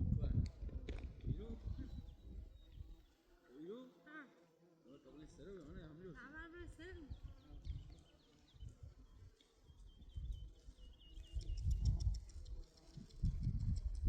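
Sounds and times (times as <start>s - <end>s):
small bird chirping: 7.2s - 14.0s.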